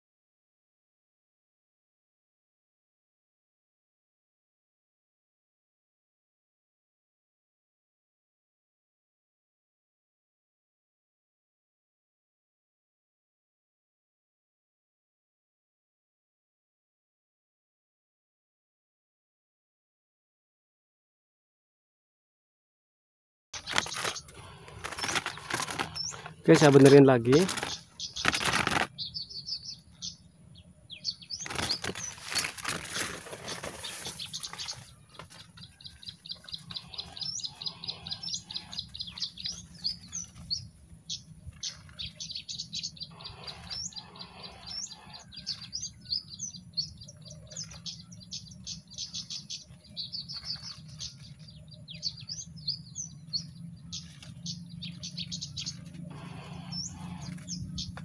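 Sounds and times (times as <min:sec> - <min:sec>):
rustling or wing-flapping: 0:23.6 - 0:29.1, 0:31.2 - 0:38.9, 0:54.0 - 0:58.0
small birds chirping: 0:23.6 - 0:58.0.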